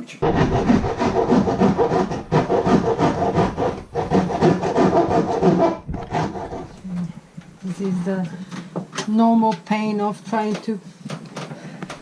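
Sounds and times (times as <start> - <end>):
hand tool rasping: 0.2 - 7.0.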